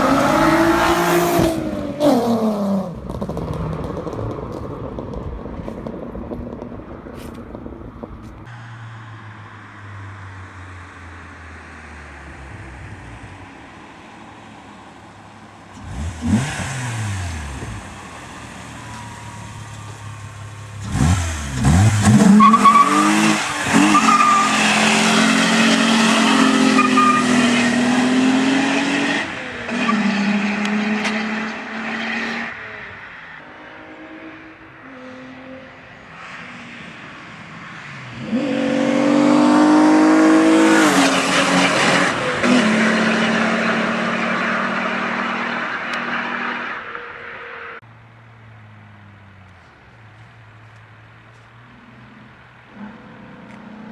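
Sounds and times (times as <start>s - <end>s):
car engine revving: 0.0s - 4.6s, 15.0s - 36.8s, 38.1s - 47.8s.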